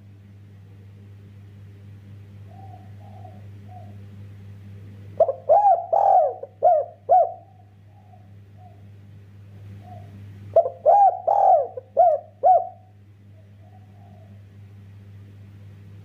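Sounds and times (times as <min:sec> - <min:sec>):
dove cooing: 0:02.4 - 0:04.1, 0:05.1 - 0:09.0, 0:09.7 - 0:14.6.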